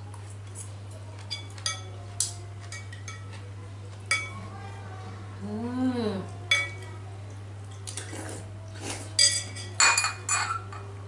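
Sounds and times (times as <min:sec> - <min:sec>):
utensils clinking on plates: 0:00.4 - 0:03.5, 0:04.1 - 0:04.4, 0:06.5 - 0:07.0, 0:07.7 - 0:11.0.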